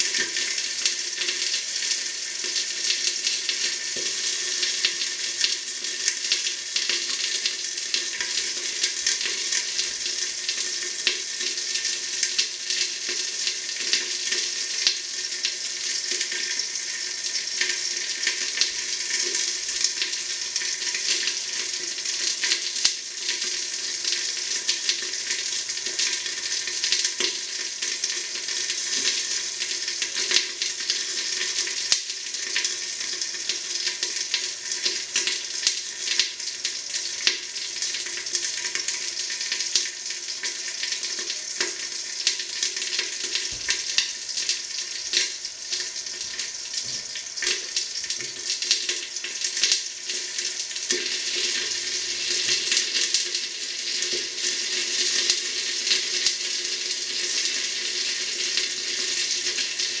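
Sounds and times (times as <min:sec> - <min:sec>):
chicken frying in a pan: 0:00.0 - 1:00.0.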